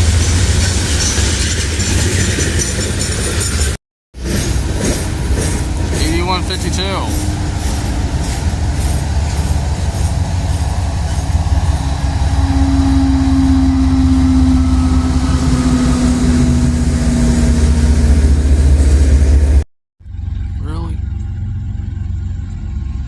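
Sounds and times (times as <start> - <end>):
train rumbling past: 0.0 - 23.0
droning tone: 9.9 - 23.0.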